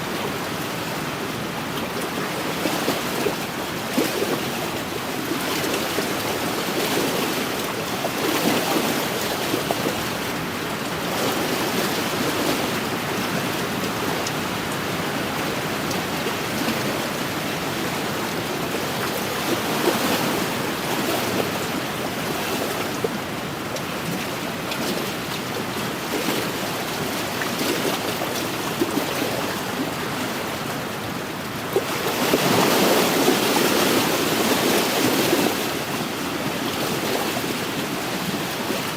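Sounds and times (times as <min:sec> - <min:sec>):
waves washing against shore: 0:00.0 - 0:38.9.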